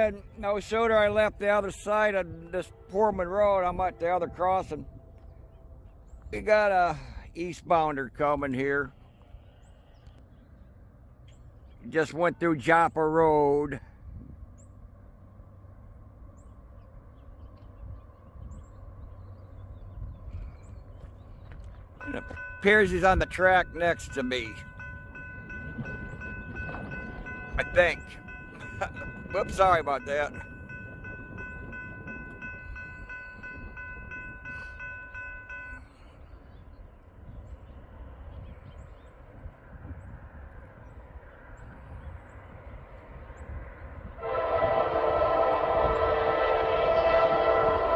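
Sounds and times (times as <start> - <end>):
passing train rumble: 0.0 - 47.9
crossing bell ringing: 22.0 - 36.2, 44.2 - 47.9.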